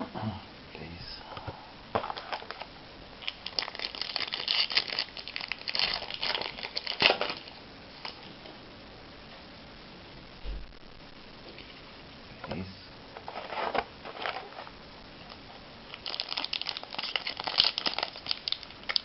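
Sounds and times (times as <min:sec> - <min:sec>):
plastic wrapping crinkling and tearing: 0:02.0 - 0:08.4, 0:13.2 - 0:19.0.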